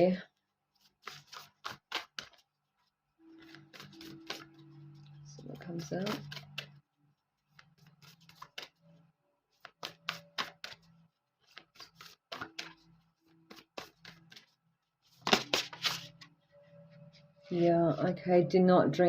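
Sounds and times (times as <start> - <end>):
cards being shuffled: 0.8 - 2.5, 3.3 - 6.8, 7.5 - 8.8, 9.5 - 16.3.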